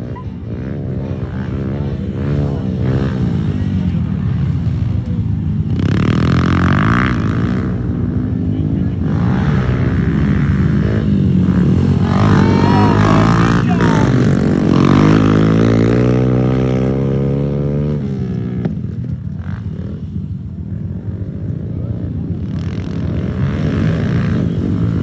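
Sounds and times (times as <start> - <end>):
pit bike engines racing: 0.0 - 25.0
engine revving higher: 11.5 - 17.0.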